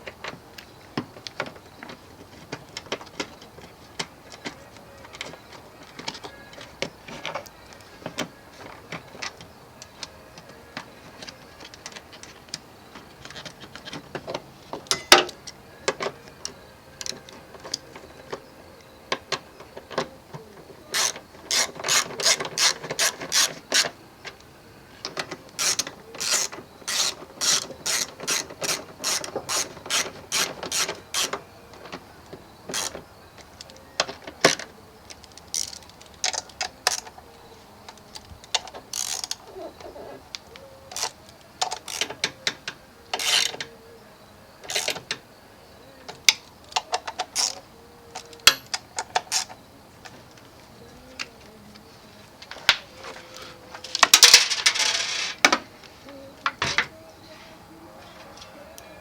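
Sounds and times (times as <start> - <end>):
ratchet wrench clicking: 20.9 - 23.9, 25.6 - 31.4, 35.2 - 37.1, 38.9 - 39.4, 40.9 - 42.1, 43.2 - 43.5, 44.7 - 45.0, 47.3 - 47.6.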